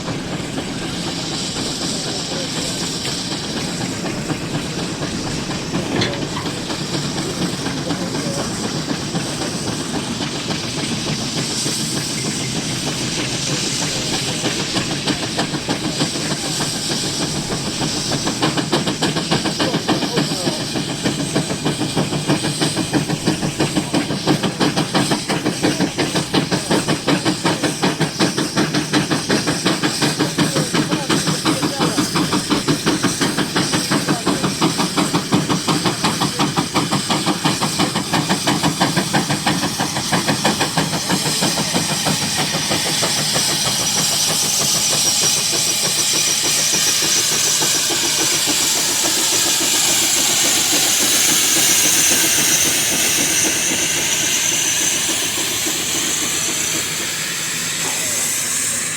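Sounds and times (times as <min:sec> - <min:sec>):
steam exhaust chuffs: 0:00.0 - 0:58.9
steam hissing: 0:00.0 - 0:58.9.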